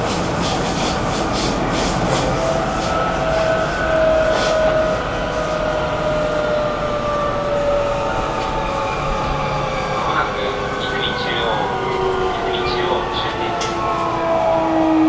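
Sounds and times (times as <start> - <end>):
train running noise: 0.0 - 15.0.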